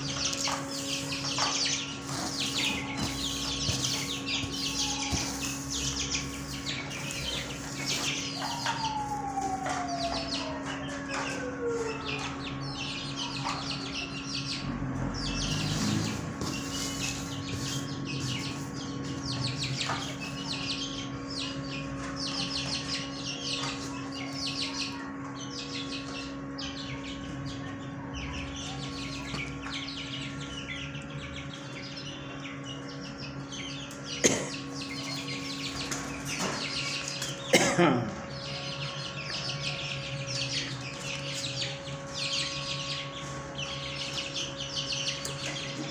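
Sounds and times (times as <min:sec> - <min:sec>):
caged birds chirping: 0:00.0 - 0:45.9
steady low hum: 0:00.0 - 0:45.9.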